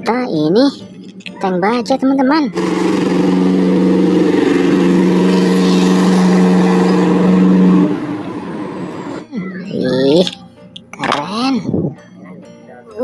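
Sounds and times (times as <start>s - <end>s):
steady motor drone: 2.5s - 9.2s.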